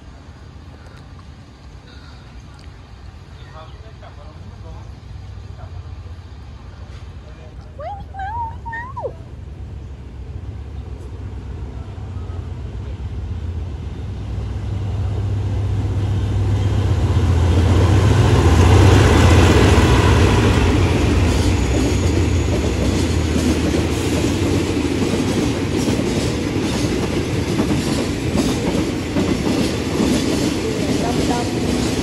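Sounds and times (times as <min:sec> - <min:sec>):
diesel locomotive engine drone: 0:00.0 - 0:32.0
wheels clickety-clack over rail joints: 0:15.2 - 0:32.0.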